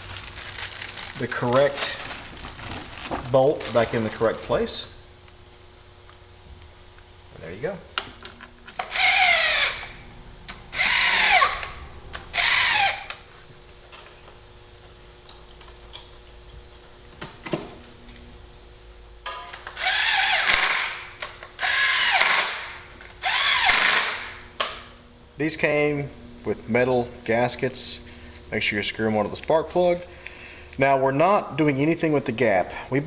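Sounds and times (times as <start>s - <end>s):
cordless drill driving bolts: 8.7s - 10.0s, 10.7s - 13.2s, 19.5s - 24.3s.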